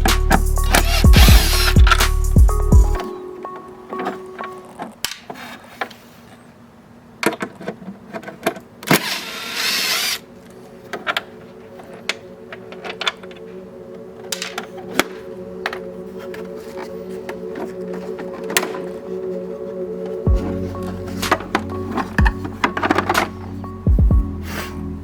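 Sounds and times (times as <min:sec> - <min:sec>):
harsh noise: 0:00.0 - 0:03.4
background music with steady tones: 0:00.0 - 0:06.1, 0:09.8 - 0:25.0.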